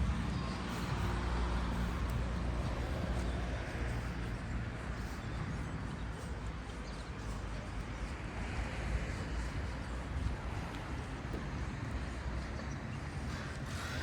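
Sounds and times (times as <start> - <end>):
vehicle engine running: 0.0 - 8.1.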